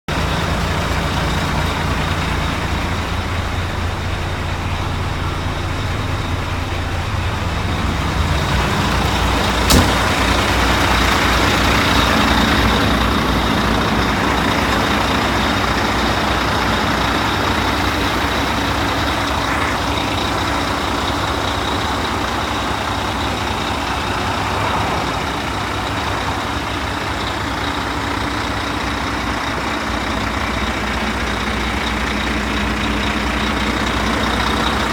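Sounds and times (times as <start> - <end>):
truck diesel engine idling: 0.1 - 34.9
sharp click: 9.7 - 10.3.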